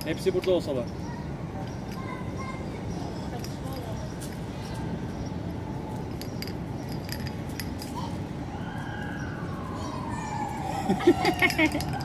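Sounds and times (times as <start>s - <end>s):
outdoor background noise: 0.0s - 12.0s
light clicks and clinks: 1.6s - 2.5s, 3.2s - 5.4s, 6.0s - 8.1s, 11.3s - 12.0s
siren wailing: 8.5s - 12.0s.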